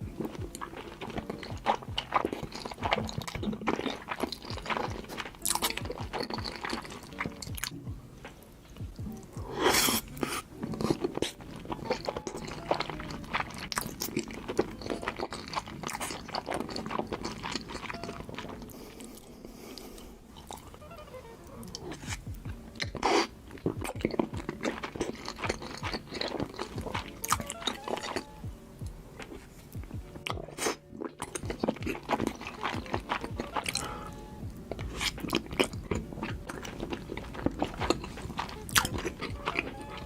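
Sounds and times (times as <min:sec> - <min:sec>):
chewing with crunches: 0:00.0 - 0:21.0, 0:21.6 - 0:40.0.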